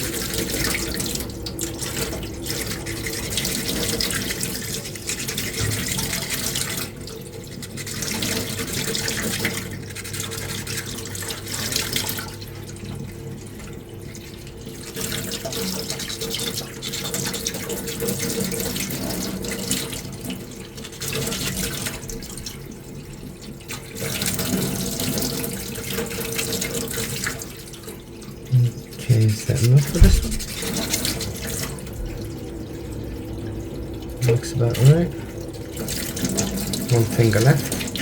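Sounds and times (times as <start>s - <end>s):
faint steady hum: 28.5s - 38.0s.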